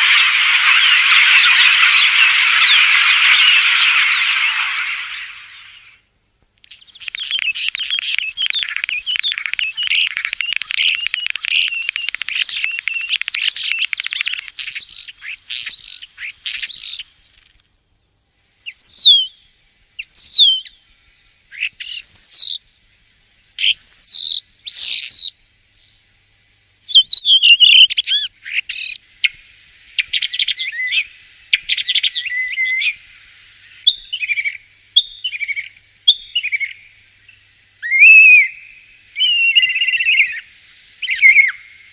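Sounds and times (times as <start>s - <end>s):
starling chattering and whistling: 0.0s - 6.0s, 6.7s - 17.1s, 41.0s - 41.6s.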